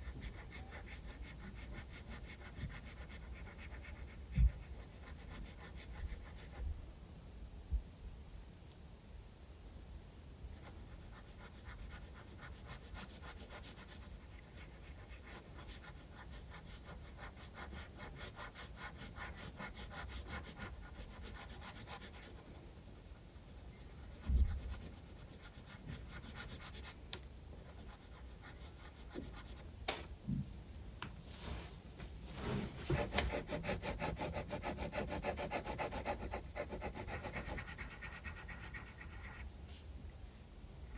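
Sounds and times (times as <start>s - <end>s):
pencil scratching on paper: 0.0s - 6.6s, 10.5s - 27.0s, 27.6s - 29.6s, 32.9s - 39.5s.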